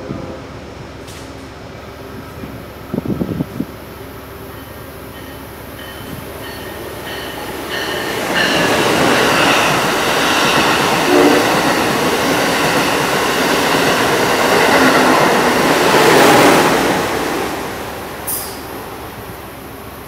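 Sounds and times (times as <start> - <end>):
high-speed train passing: 0.0 - 20.0.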